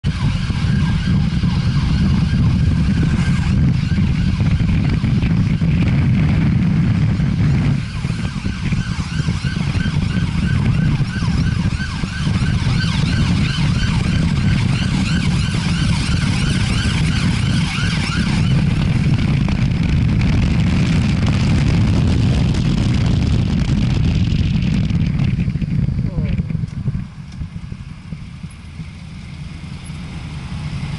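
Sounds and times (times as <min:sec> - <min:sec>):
wavering siren: 0:00.0 - 0:26.3
road rumble: 0:00.0 - 0:30.9
wind noise: 0:00.0 - 0:30.9.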